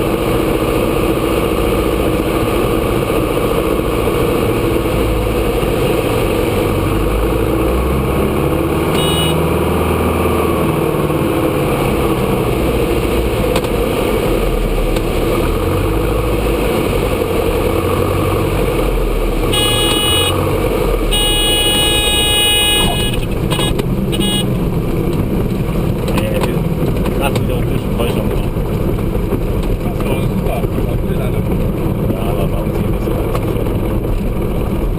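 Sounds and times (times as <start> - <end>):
stall warning horn: 8.9 - 9.4, 19.5 - 24.6.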